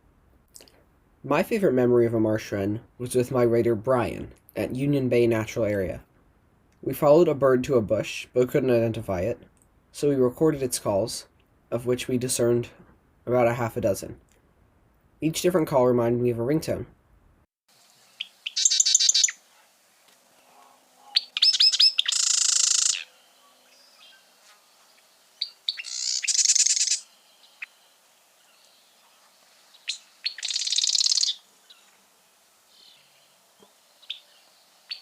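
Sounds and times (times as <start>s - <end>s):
wren song with buzzy trill: 18.1s - 19.4s, 20.4s - 32.0s, 32.7s - 35.0s.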